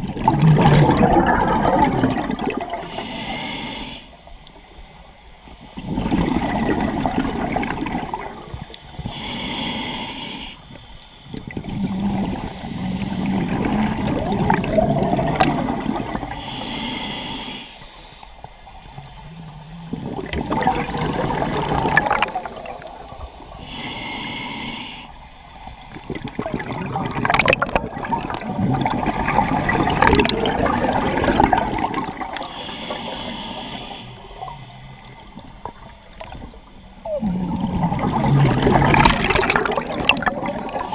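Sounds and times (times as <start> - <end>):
exhaled air bubbling: 0.0 - 3.5, 4.4 - 9.7, 11.2 - 17.6, 18.4 - 24.2, 25.5 - 40.9
regulator inhale hiss: 2.8 - 7.0, 8.5 - 13.6, 16.2 - 20.0, 22.3 - 25.9, 31.4 - 37.1, 40.3 - 40.9.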